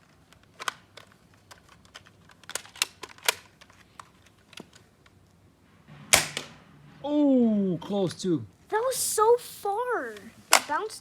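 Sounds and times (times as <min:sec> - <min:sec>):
plastic toy blaster clicking: 0:00.3 - 0:04.8.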